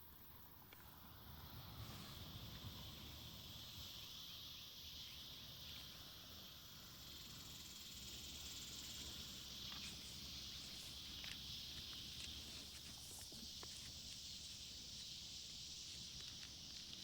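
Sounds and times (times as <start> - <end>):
insect chorus: 0.0 - 17.0
faint ticks: 8.5 - 17.0.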